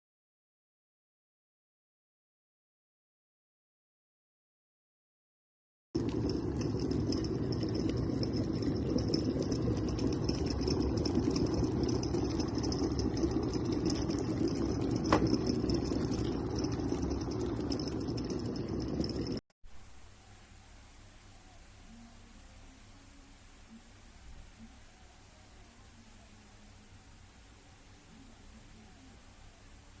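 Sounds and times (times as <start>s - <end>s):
kettle water bubbling: 6.0s - 19.4s.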